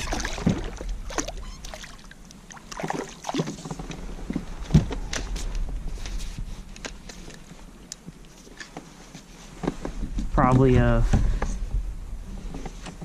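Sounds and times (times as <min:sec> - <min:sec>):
fish splashing: 0:00.0 - 0:03.8.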